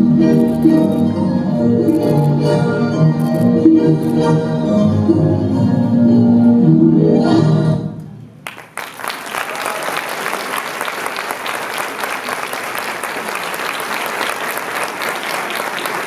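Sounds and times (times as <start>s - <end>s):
audience applause: 0.4s - 1.0s, 8.5s - 16.0s
music: 2.5s - 8.2s.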